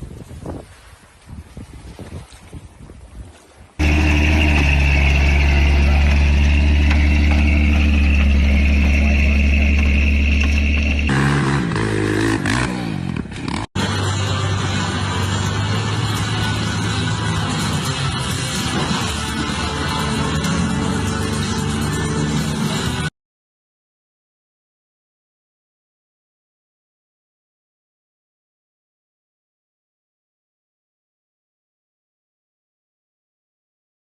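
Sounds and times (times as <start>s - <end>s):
another engine droning: 3.8s - 23.1s
truck engine droning and revving: 3.8s - 23.1s.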